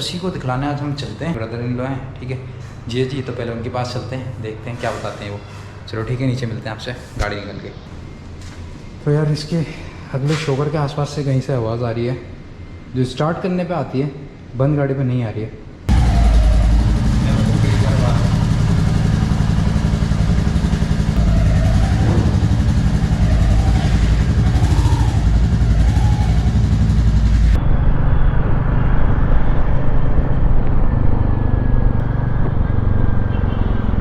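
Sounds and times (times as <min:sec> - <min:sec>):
motorcycle engine pulsing: 0:15.9 - 0:34.0
road and wind noise: 0:16.8 - 0:34.0.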